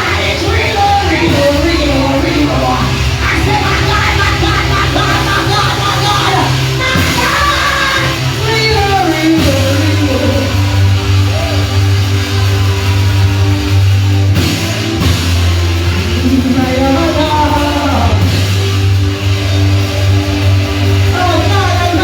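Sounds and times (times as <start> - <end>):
person singing: 0.0 - 11.5
band playing worship music: 0.0 - 22.0.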